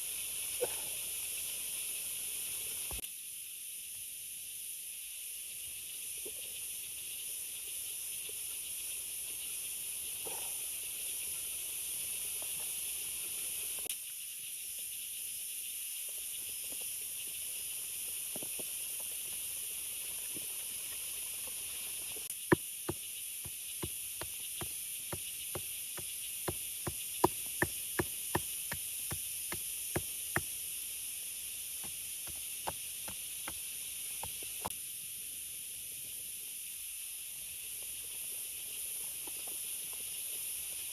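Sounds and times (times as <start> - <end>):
sharp knocks: 22.5 - 30.5.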